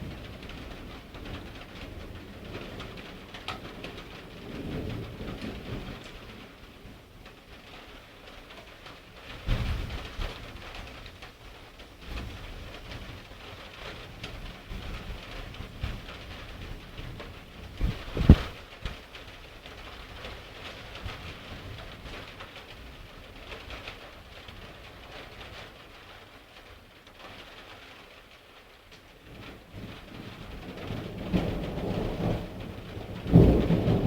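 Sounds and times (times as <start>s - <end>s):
steady rain: 0.0s - 34.0s
thunder rumbling: 15.7s - 19.0s, 29.3s - 34.0s
sharp thunder crack: 17.8s - 18.6s.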